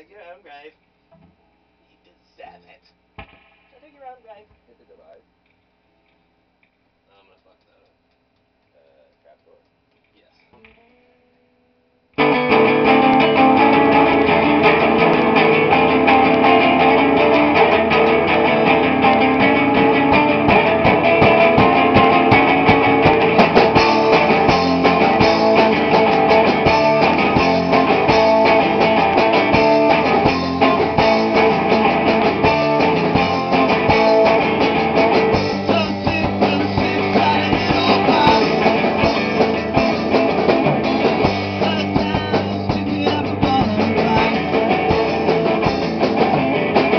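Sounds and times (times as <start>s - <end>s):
rock band playing: 12.2s - 46.9s.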